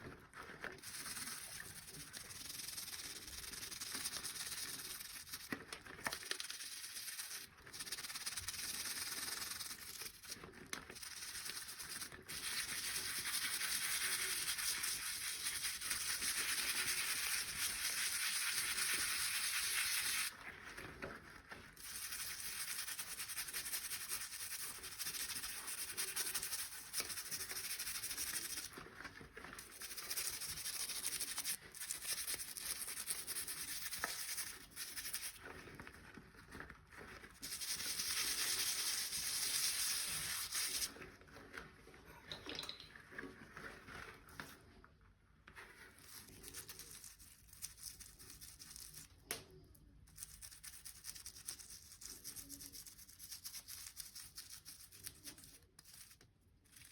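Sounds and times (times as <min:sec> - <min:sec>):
brush scrubbing: 0:00.0 - 0:41.9, 0:45.5 - 0:49.1.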